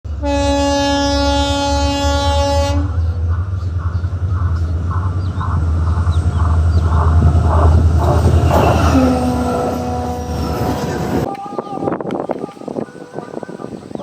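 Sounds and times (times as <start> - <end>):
locomotive horn blast: 0.1 - 3.7, 6.8 - 12.0
locomotive engine rumble: 0.1 - 14.0
passing train clatter: 0.1 - 14.0.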